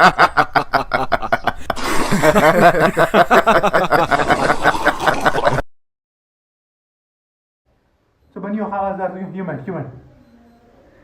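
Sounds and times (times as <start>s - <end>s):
person laughing: 0.0s - 5.7s.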